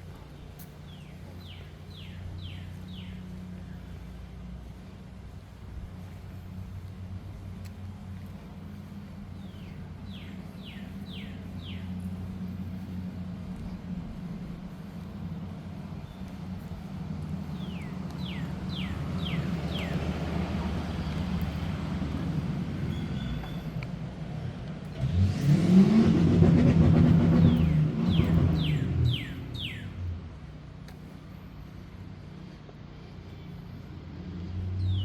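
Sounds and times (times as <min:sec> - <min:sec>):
low traffic hum: 0:00.0 - 0:35.0
vehicle passing by: 0:00.9 - 0:35.0
bird singing downslurred notes: 0:27.5 - 0:30.1.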